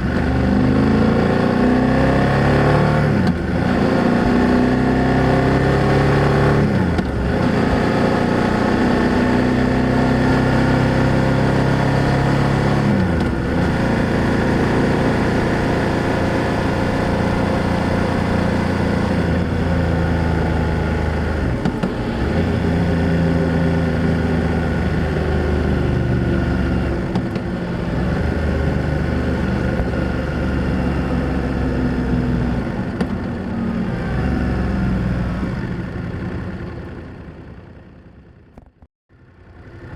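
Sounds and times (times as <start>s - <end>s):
motorcycle engine under way: 0.0s - 39.9s.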